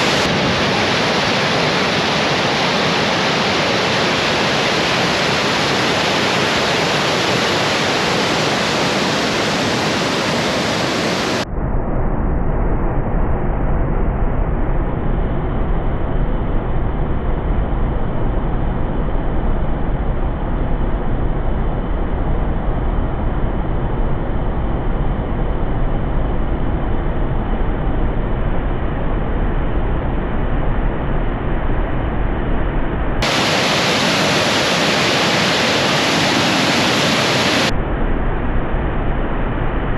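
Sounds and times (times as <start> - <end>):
waterfall roaring: 0.0 - 11.4, 33.2 - 37.7.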